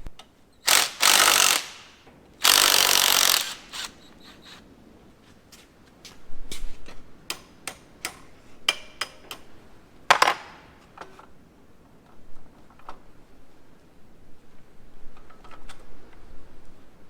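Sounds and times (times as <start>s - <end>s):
sharp metallic clicks: 0.6s - 4.0s.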